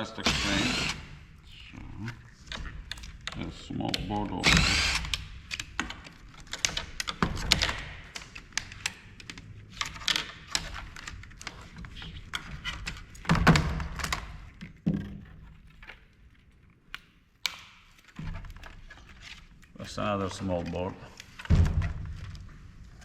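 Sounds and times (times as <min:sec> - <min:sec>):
plastic parts clicking and knocking: 0:02.0 - 0:23.0.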